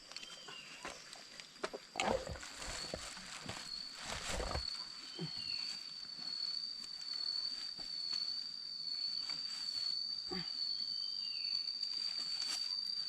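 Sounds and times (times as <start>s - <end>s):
high insect trill: 0.0s - 13.0s
rustling rumbling noises: 1.7s - 4.8s.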